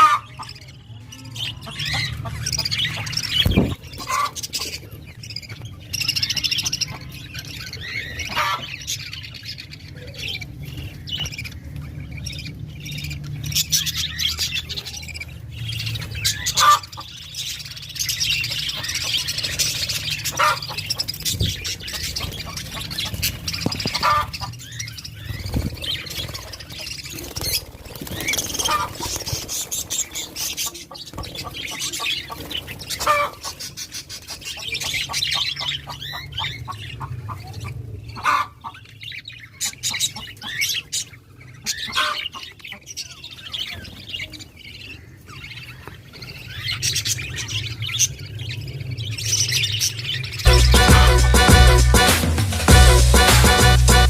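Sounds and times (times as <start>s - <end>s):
parrots squawking and chirping: 0.0s - 54.0s.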